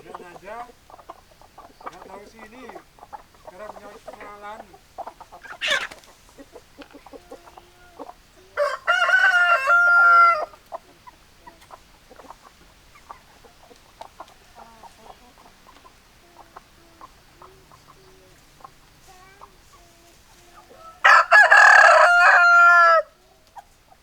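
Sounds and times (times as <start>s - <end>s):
hens clucking softly: 0.0s - 24.0s
rooster crowing: 8.6s - 10.6s, 20.8s - 23.2s.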